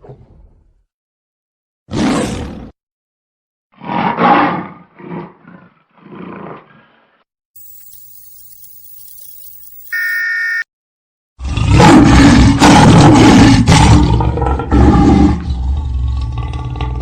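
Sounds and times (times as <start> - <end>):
short electronic beep: 7.6 - 10.7
lion roaring: 11.4 - 17.0.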